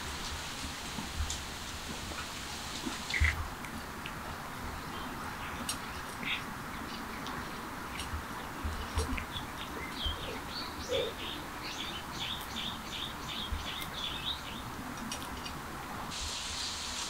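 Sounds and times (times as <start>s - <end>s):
steady outdoor hiss: 0.0s - 17.0s
small birds chirping: 2.7s - 15.6s.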